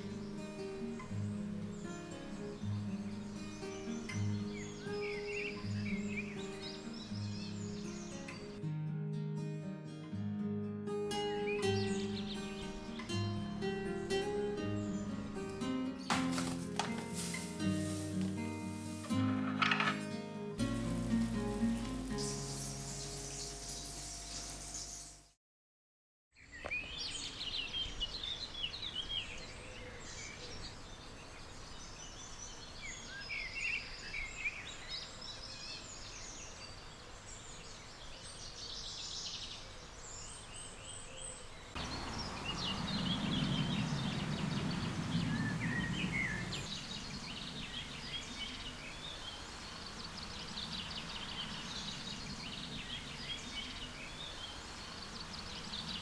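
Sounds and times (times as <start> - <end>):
songbirds chirping and singing: 0.0 - 8.6, 11.4 - 19.2, 20.6 - 25.2, 26.4 - 56.0
outdoor background noise: 11.6 - 20.0, 20.6 - 25.4, 26.4 - 56.0.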